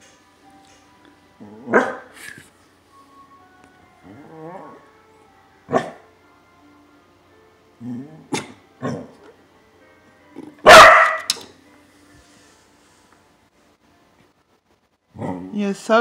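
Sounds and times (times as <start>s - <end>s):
dog barking: 1.7s - 2.1s, 5.7s - 6.0s, 8.3s - 9.1s, 10.6s - 11.3s.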